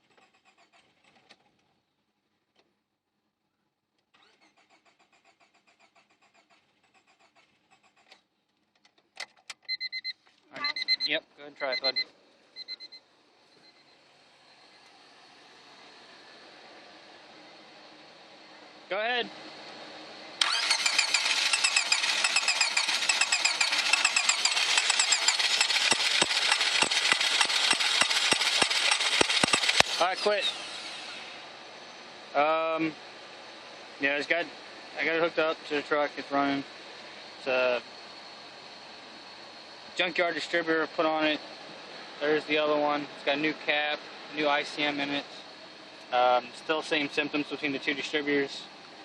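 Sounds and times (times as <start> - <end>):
electronic beeping: 9.7 - 13.0
sharp clicks: 20.4 - 30.1
engine cranking on starter: 20.4 - 31.4.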